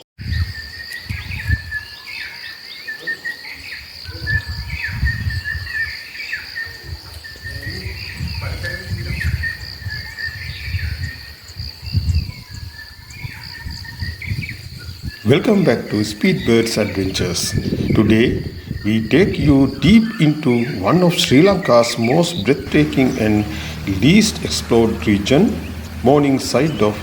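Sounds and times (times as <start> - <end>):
insects droning: 0.2 - 27.0
low rumbles: 13.7 - 27.0.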